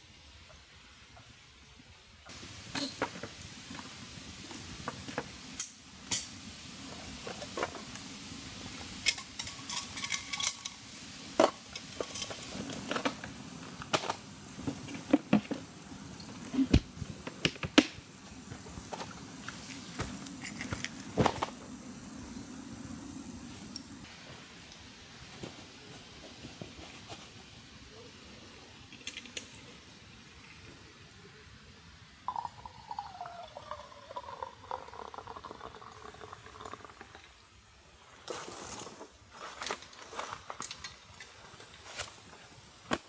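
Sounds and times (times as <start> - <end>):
metal cookware clinking: 9.0 - 12.6.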